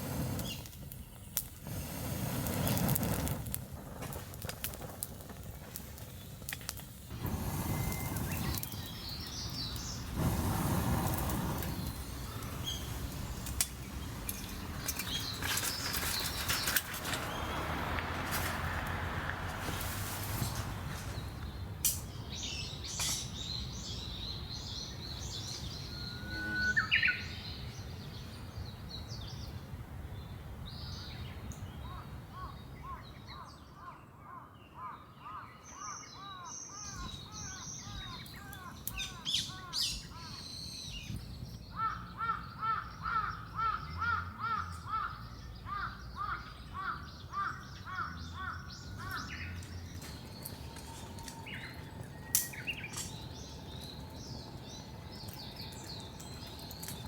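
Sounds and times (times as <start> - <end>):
repeated bird call notes: 22.4 - 27.7
high bird chirps: 22.4 - 27.8.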